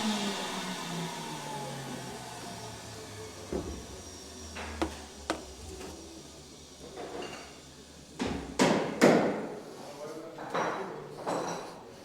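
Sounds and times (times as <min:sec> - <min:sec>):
sharp taps: 0:04.8 - 0:06.0
tools clattering on workbench: 0:04.8 - 0:06.0.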